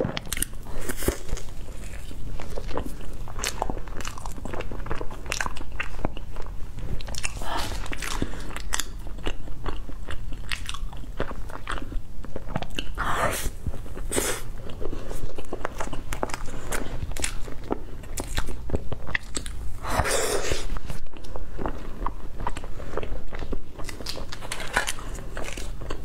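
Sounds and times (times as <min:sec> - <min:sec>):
chewing with wet mouth clicks: 0:00.0 - 0:13.0, 0:13.8 - 0:19.7, 0:20.8 - 0:26.0
crunching bites of pastry: 0:21.0 - 0:26.0.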